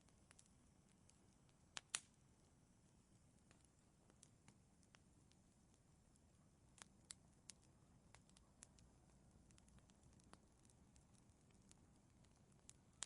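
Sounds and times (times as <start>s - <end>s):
fireplace fire crackling: 0.0s - 13.0s
low steady hiss: 0.0s - 13.0s.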